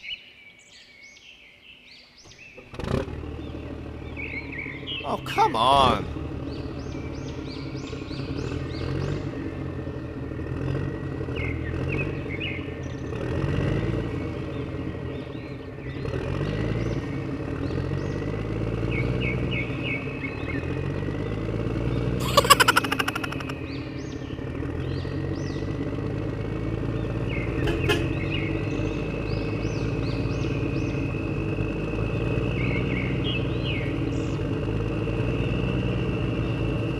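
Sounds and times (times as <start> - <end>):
birds chirping: 3.3 - 10.2, 14.0 - 25.8, 26.8 - 34.6
toy truck engine revving: 22.2 - 23.6.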